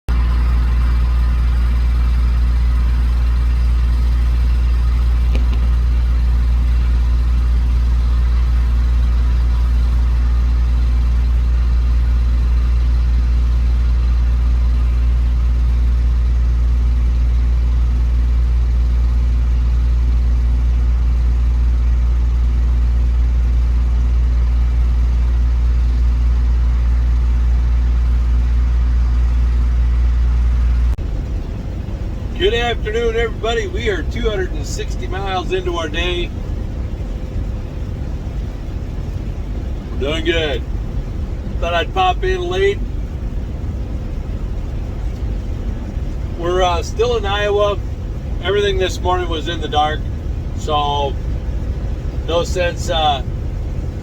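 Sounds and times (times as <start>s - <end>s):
truck engine and road noise: 0.0s - 54.0s.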